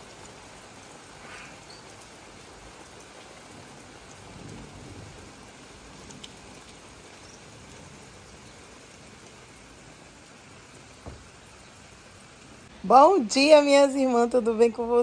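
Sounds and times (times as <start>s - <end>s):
rain falling on vegetation: 0.0s - 15.0s.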